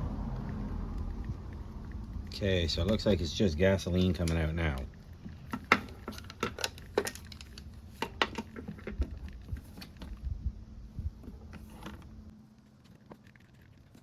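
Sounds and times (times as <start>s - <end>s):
hands handling parts on a workbench: 5.5s - 10.2s.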